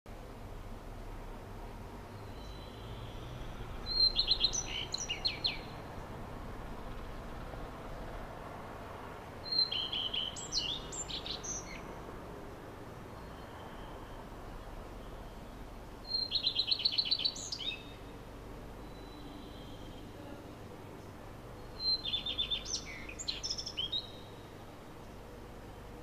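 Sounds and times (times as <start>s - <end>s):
background hiss: 0.1s - 26.0s
songbird singing high chirps: 2.0s - 6.2s, 9.4s - 12.0s, 13.0s - 25.2s.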